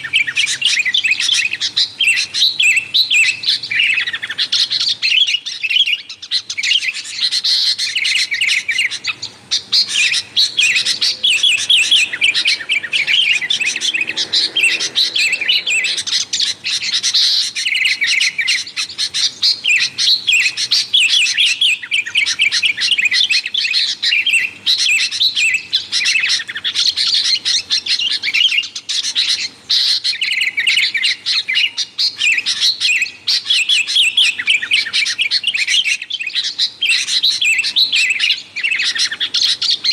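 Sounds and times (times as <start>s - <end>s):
birds chattering and chirping: 0.0s - 39.9s.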